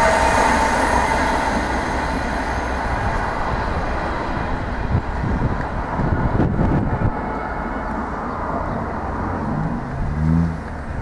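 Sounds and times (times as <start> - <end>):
electric train passing: 0.0 - 11.0
train wheel and rail noise: 0.0 - 11.0
train whine: 0.0 - 11.0.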